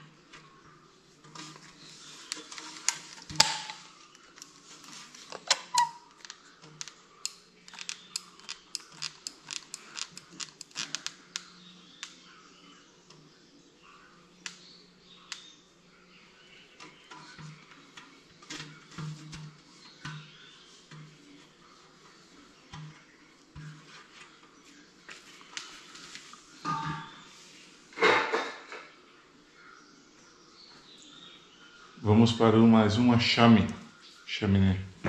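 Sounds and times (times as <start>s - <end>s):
sharp clicks and light knocks: 2.3s - 12.2s.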